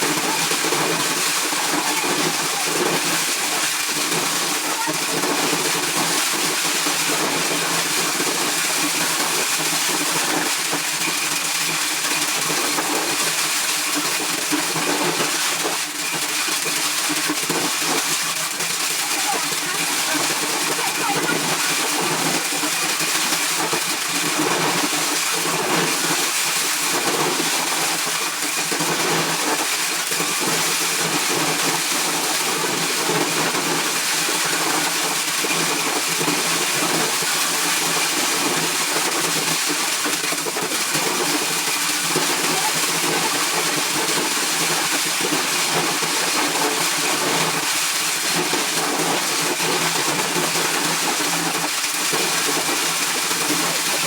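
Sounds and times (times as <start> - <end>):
corn shelling machine drone: 18.4 - 24.0.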